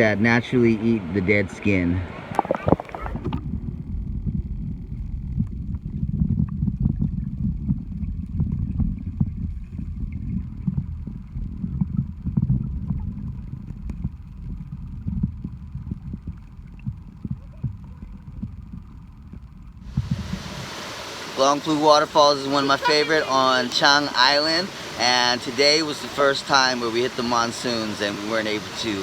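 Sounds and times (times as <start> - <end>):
muffled underwater rumbling: 0.0 - 29.0
small underwater crackles: 2.3 - 21.3.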